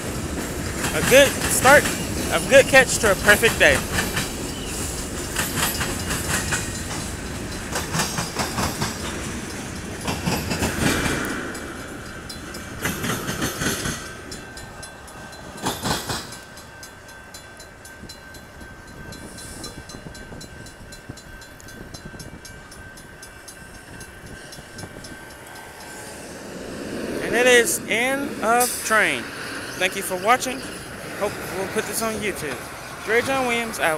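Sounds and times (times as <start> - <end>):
train wheels clattering over rail joints: 0.0 - 17.5
crossing bell ringing: 0.0 - 33.9.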